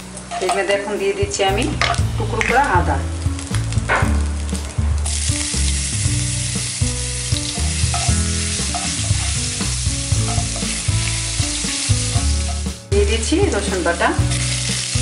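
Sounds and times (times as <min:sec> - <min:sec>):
hot oil sizzling: 0:00.0 - 0:15.0
wooden spatula stirring: 0:07.5 - 0:10.9.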